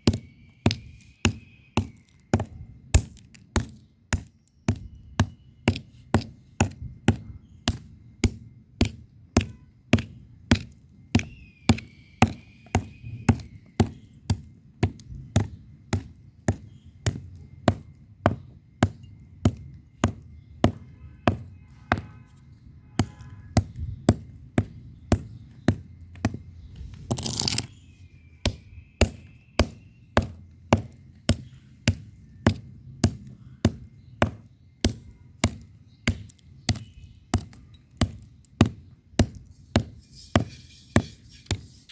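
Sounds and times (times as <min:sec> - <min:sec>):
bricks knocking together: 0:23.0 - 0:27.8.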